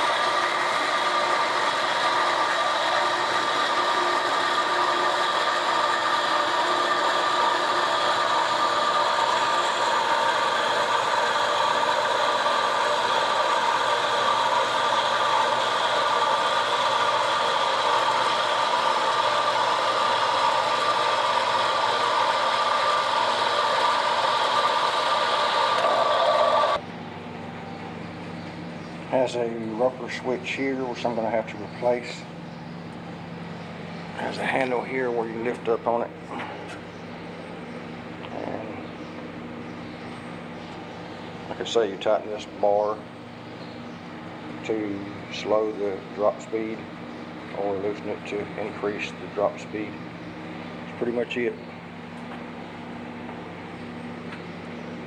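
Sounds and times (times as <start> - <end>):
band saw whirring: 0.0 - 26.8.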